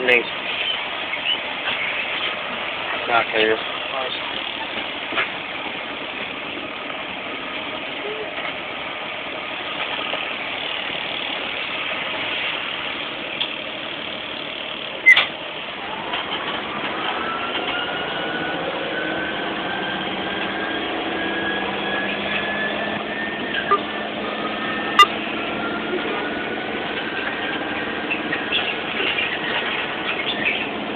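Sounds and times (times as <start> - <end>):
vehicle engine running: 0.0 - 30.9
whine rising in pitch: 16.6 - 28.6.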